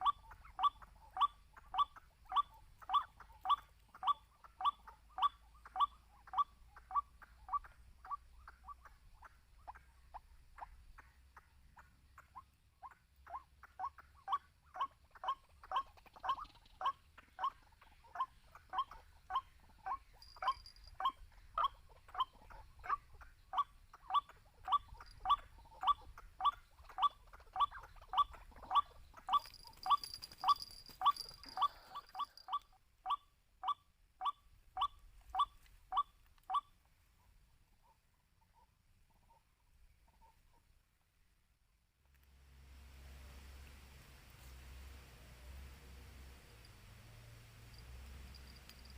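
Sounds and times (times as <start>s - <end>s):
waterhen calling kwak notes: 0.0s - 8.8s, 12.3s - 36.7s.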